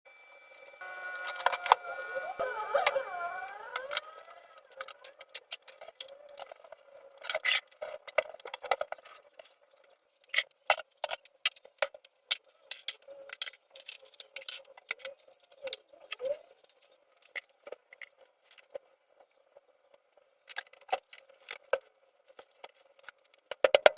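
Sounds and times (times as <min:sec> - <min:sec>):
faint steady tone: 0:00.1 - 0:05.3.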